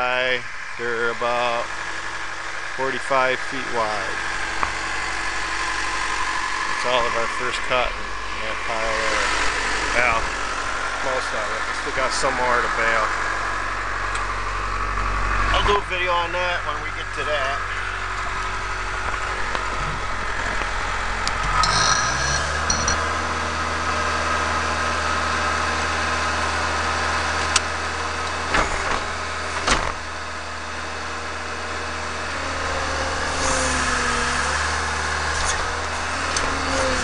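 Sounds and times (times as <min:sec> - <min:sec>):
tractor engine running: 0:00.0 - 0:37.0
high squeal: 0:21.4 - 0:23.0
sharp metal clanks: 0:21.5 - 0:23.1.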